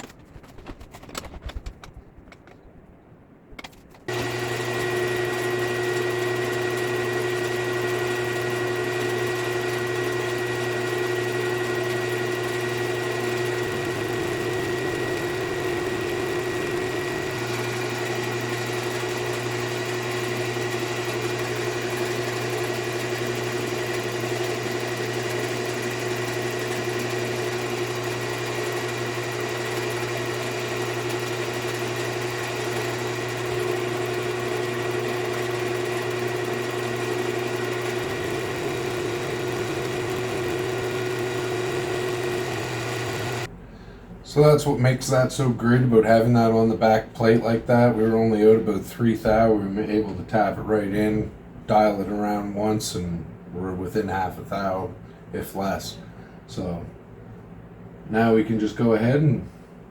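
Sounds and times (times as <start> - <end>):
milling machine motor humming: 4.0 - 43.6.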